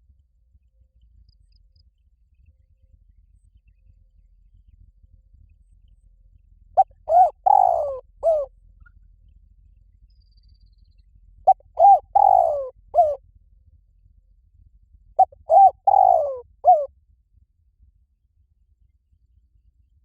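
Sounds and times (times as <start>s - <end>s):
dove cooing: 6.8s - 8.5s, 11.5s - 13.2s, 15.2s - 16.9s.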